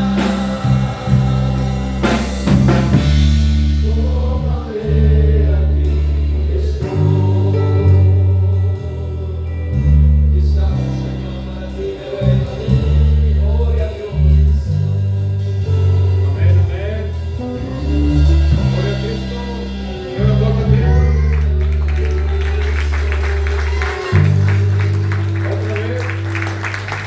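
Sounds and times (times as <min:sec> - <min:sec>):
people singing: 0:00.0 - 0:14.5
worship band playing: 0:00.0 - 0:27.0.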